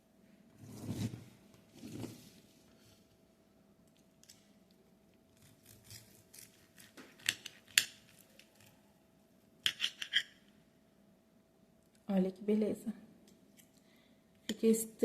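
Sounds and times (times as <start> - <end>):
cutlery scraping a dish: 9.6 - 10.4.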